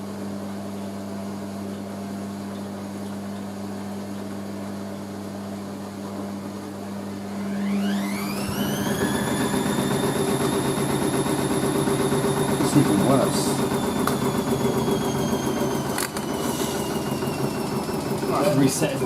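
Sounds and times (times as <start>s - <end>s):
washing machine motor whine rising: 0.0s - 19.0s
washing machine drum turning: 7.6s - 19.0s.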